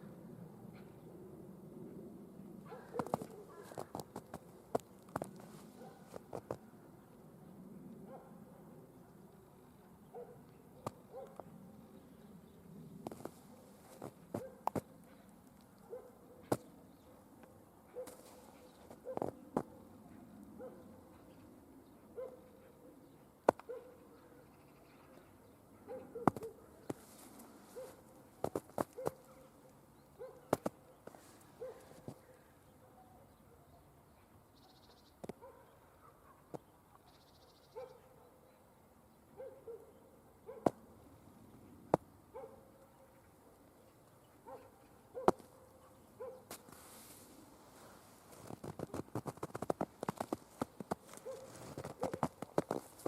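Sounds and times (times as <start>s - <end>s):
distant dog barking: 2.7s - 4.0s, 5.7s - 6.2s, 8.0s - 8.7s, 10.1s - 11.5s, 13.5s - 15.2s, 15.8s - 17.2s, 17.9s - 21.2s, 22.1s - 22.9s, 23.6s - 24.3s, 25.8s - 28.1s, 28.8s - 30.7s, 31.5s - 33.8s, 35.4s - 36.6s, 37.7s - 38.6s, 39.4s - 40.8s, 42.3s - 43.2s, 44.4s - 46.7s, 51.1s - 52.8s.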